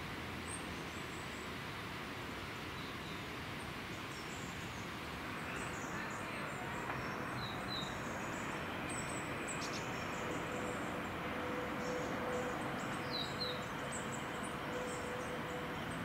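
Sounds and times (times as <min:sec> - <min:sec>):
birds chirping: 0:04.1 - 0:16.0
electric train rumble: 0:05.1 - 0:16.0.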